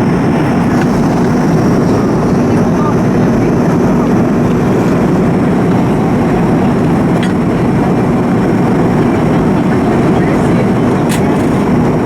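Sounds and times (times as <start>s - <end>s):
airplane cabin roar: 0.0s - 12.0s.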